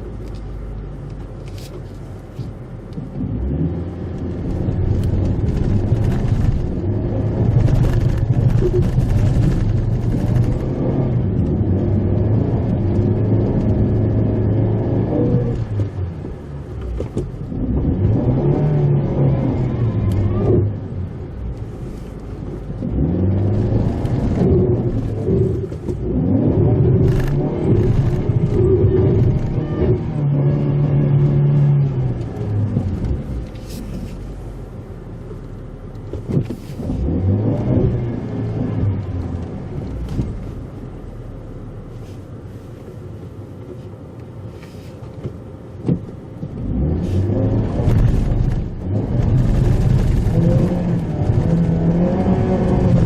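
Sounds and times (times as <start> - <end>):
road rumble: 0.0 - 53.0
small car engine revving: 22.7 - 34.2, 36.6 - 40.4, 46.5 - 53.0.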